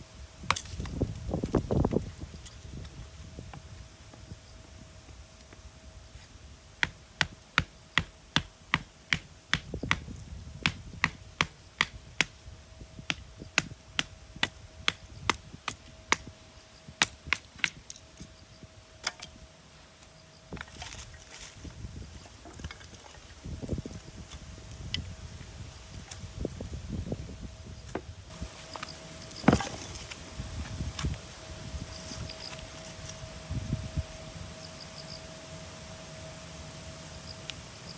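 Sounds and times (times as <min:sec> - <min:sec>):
wood chopping knocks: 0:06.8 - 0:12.3, 0:29.4 - 0:29.8.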